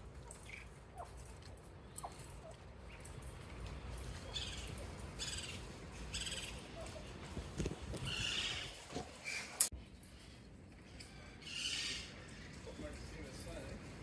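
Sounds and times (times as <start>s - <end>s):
harsh high-pitched bird calls: 4.2s - 6.7s, 8.0s - 9.6s, 10.9s - 13.0s.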